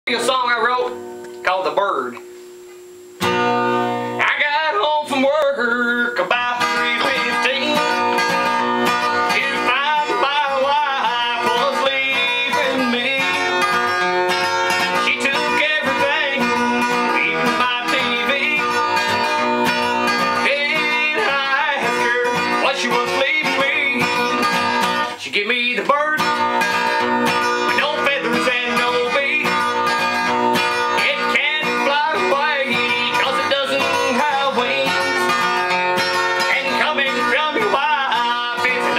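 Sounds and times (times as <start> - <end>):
acoustic guitar strumming: 0.1 - 38.9.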